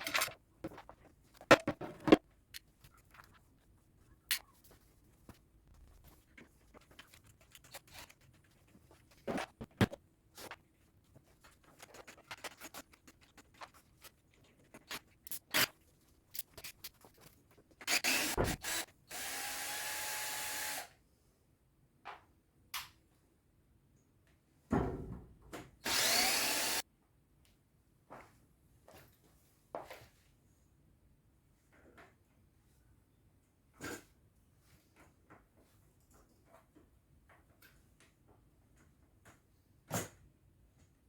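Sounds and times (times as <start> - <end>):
small power drill running: 17.9 - 20.9, 25.8 - 26.8.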